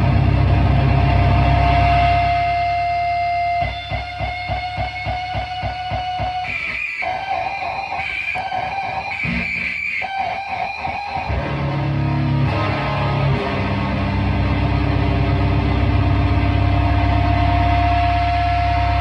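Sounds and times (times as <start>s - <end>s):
thick low drone: 0.0s - 3.3s, 12.3s - 19.0s
distorted electric guitar: 0.0s - 19.0s.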